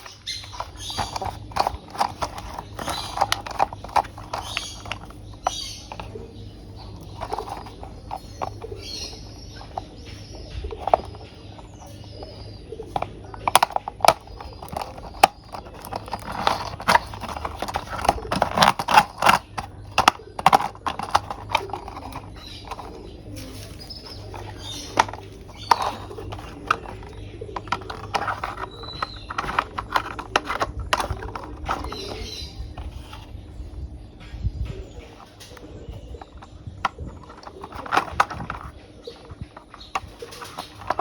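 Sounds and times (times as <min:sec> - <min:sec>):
plastic toy parts clicking: 0:00.0 - 0:06.1, 0:07.0 - 0:08.7, 0:10.7 - 0:12.0, 0:12.9 - 0:22.9, 0:24.1 - 0:32.2, 0:36.3 - 0:38.8, 0:39.6 - 0:41.0.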